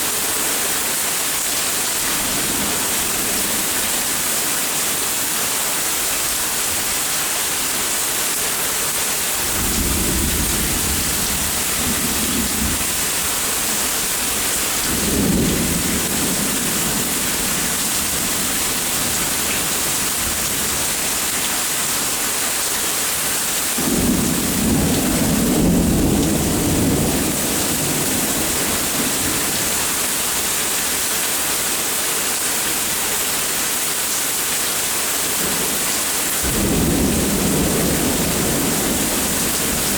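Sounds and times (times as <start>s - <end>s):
rain falling: 0.0s - 39.9s
thunder rumbling: 9.4s - 20.8s, 23.8s - 29.5s, 36.4s - 39.9s.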